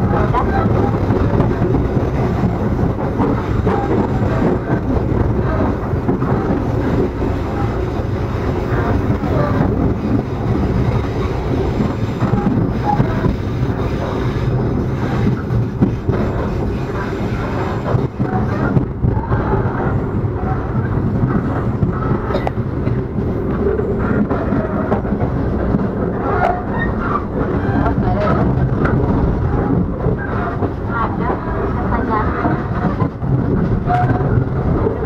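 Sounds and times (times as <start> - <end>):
train rumbling on rails: 0.0 - 35.0.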